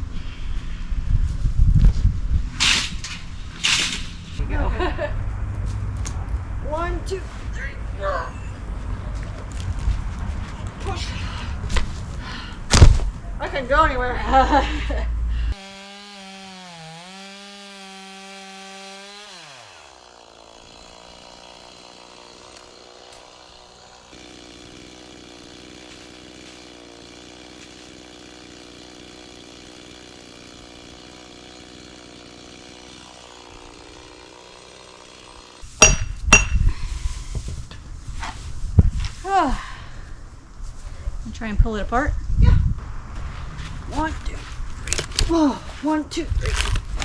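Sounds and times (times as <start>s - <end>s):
chainsaw running: 14.4s - 37.6s.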